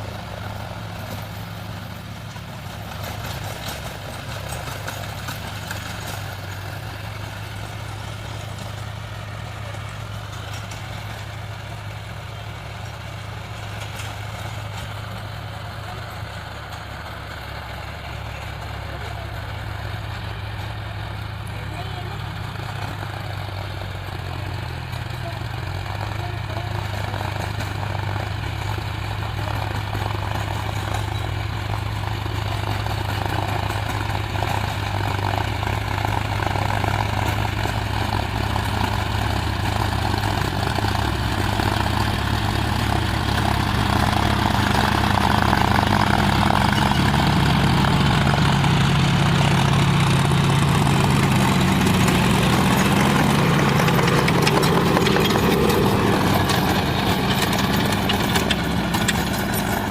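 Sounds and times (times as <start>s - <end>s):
tractor diesel engine running: 0.0s - 59.9s
higher engine note: 30.5s - 59.9s.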